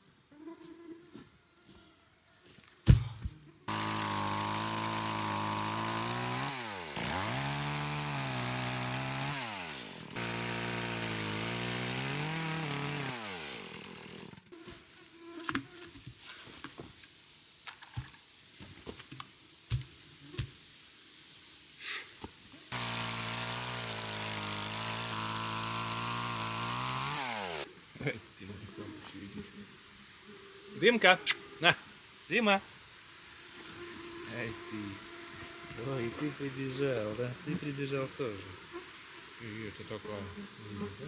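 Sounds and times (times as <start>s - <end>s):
small engine running: 3.7s - 14.5s, 22.7s - 27.7s.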